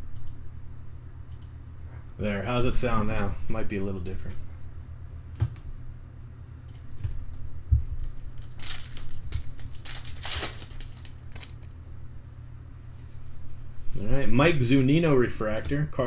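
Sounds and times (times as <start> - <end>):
steady low hum: 0.0 - 16.0
foil wrapper tearing and crinkling: 8.1 - 11.8.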